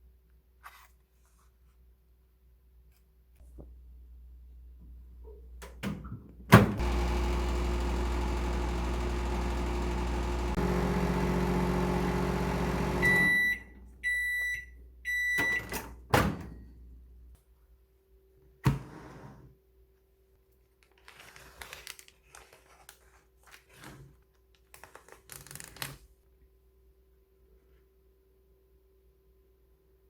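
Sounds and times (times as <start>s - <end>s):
microwave oven humming: 6.8s - 15.4s
microwave beeps: 6.8s - 15.8s.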